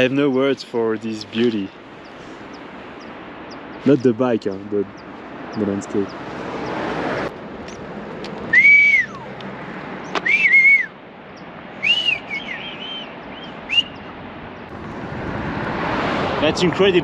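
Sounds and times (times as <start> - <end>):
person whistling a tune: 8.5 - 9.2, 10.2 - 10.9, 11.8 - 13.0, 13.7 - 14.0.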